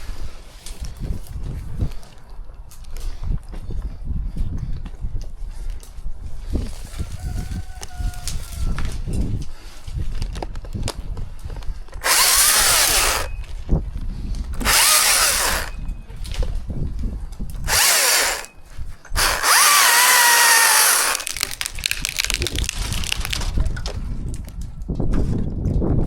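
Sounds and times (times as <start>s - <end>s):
chainsaw revving in bursts: 12.0s - 13.3s, 14.6s - 15.8s, 17.6s - 18.5s, 19.2s - 22.3s.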